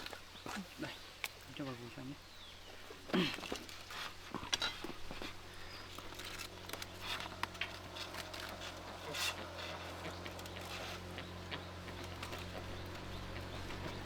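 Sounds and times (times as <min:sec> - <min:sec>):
dried fish rustling in basket: 0:03.2 - 0:14.0
low hum: 0:04.5 - 0:14.0.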